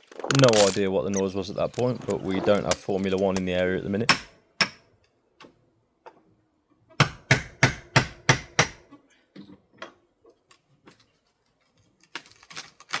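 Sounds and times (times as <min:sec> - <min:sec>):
hammer striking window frame: 0:04.1 - 0:04.8, 0:07.0 - 0:08.8.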